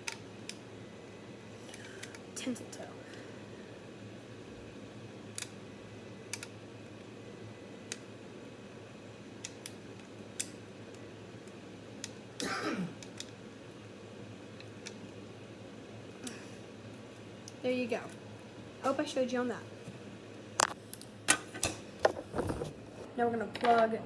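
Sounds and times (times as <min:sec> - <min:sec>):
screwdriver clicks and ticks: 0:06.3 - 0:06.5.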